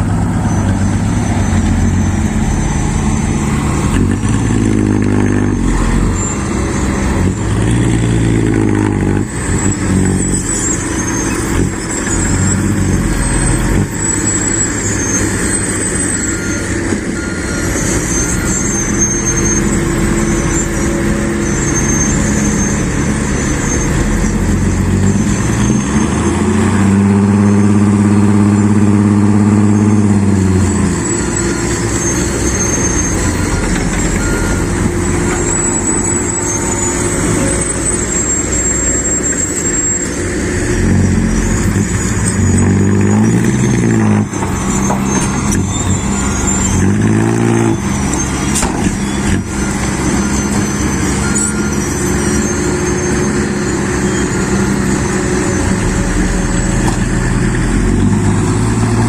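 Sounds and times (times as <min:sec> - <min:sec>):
diesel truck engine revving: 0:00.0 - 0:59.0.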